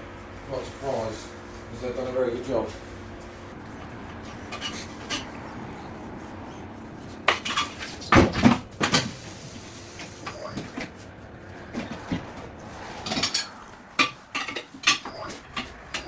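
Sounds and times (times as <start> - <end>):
metal tools clinking and clanking: 4.4 - 5.4, 13.0 - 16.0.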